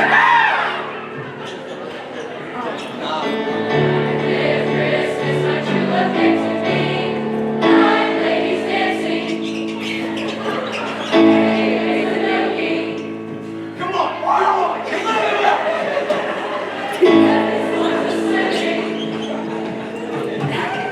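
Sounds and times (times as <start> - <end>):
choir singing long chords: 0.0 - 2.4, 3.0 - 20.9.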